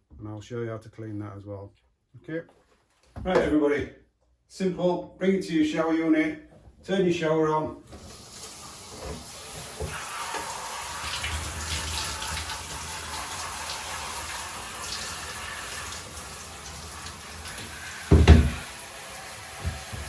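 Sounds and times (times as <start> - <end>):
shower water spraying: 7.9 - 20.0
loud thump: 18.1 - 18.6.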